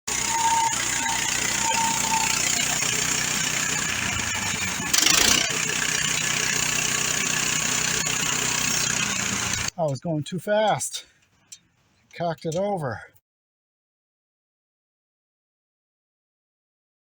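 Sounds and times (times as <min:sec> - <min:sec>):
gas engine running: 0:00.0 - 0:10.1
band blade cutting wood: 0:04.8 - 0:06.3.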